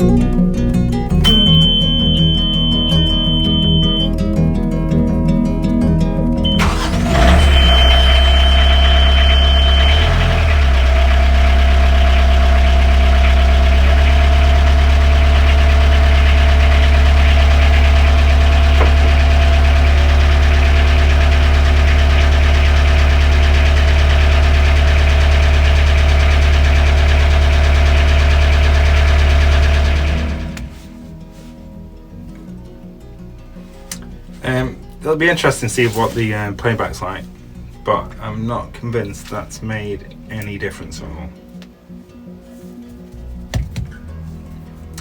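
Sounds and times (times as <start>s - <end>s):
diesel engine running steadily: 1.1s - 4.1s, 6.4s - 30.9s
thin high tone: 1.1s - 4.1s, 6.5s - 24.8s.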